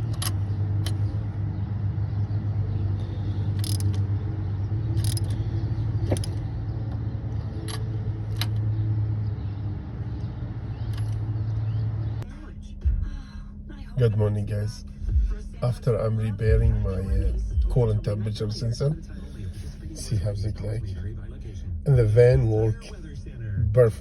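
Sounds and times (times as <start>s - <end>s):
light metallic clicks: 0.0s - 1.2s, 2.9s - 8.9s, 10.1s - 11.8s
car engine idling: 0.0s - 24.0s.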